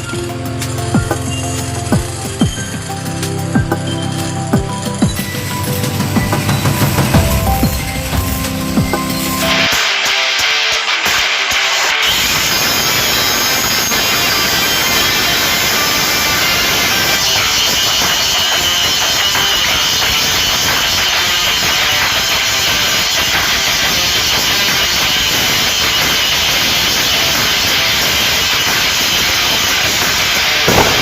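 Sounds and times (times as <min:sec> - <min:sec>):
background music: 0:00.0 - 0:11.2
angle grinder cutting: 0:00.0 - 0:31.0.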